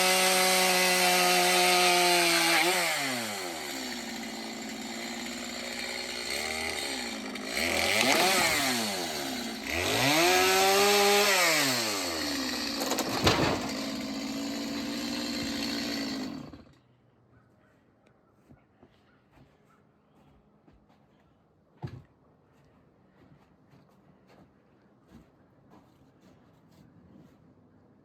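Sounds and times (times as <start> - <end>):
chainsaw engine revving: 0.0 - 16.7.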